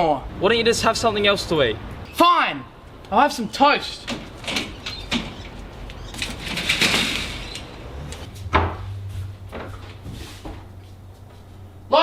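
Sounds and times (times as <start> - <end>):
cupboard door opening and shutting: 4.0 - 8.9.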